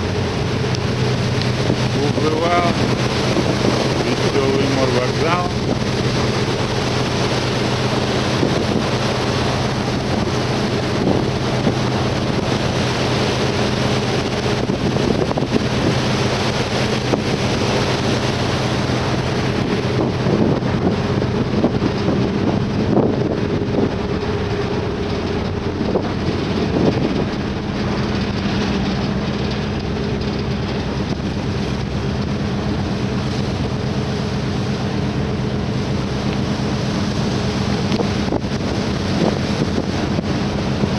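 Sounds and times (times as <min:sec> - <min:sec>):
ship engines droning: 0:00.0 - 0:40.9
water rushing past hull: 0:00.0 - 0:40.9
wind buffeting microphone: 0:00.0 - 0:40.9.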